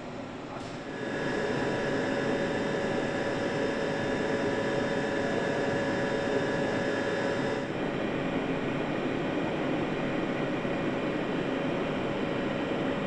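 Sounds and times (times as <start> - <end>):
factory machinery drone: 0.0 - 13.0
machinery whining tones: 0.9 - 7.7.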